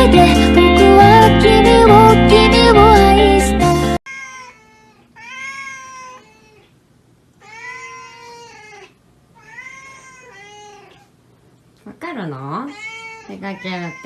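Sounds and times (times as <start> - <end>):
cat meowing: 4.1 - 6.7, 7.4 - 11.1, 12.7 - 14.0.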